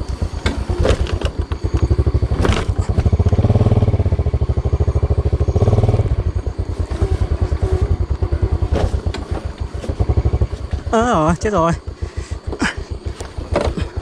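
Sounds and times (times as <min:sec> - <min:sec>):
small motorcycle engine revving: 0:00.0 - 0:11.1.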